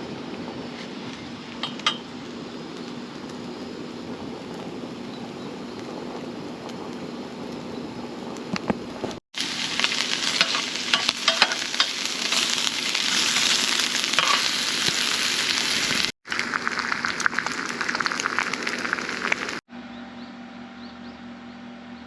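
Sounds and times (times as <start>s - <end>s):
food sizzling in a pan: 0.7s - 5.9s, 9.4s - 19.6s.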